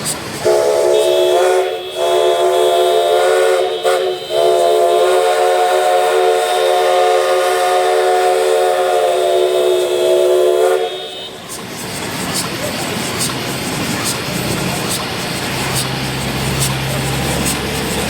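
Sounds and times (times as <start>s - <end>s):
steam locomotive whistle: 0.4s - 11.6s.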